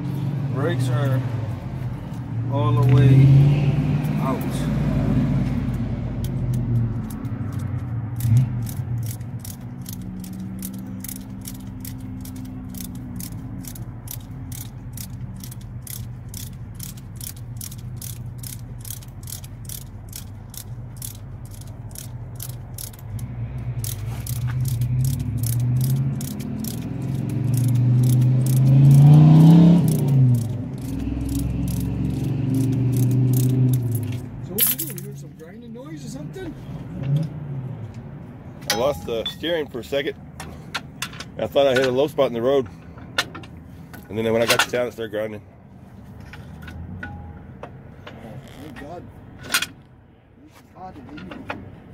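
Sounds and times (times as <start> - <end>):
vehicle engine running: 5.4 - 37.0
ratchet wrench clicking: 5.7 - 35.2.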